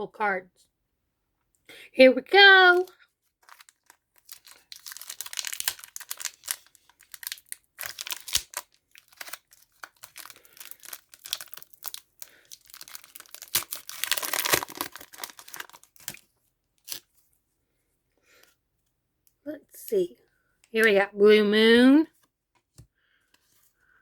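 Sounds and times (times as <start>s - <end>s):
foil pack tearing and crinkling: 3.4s - 16.2s.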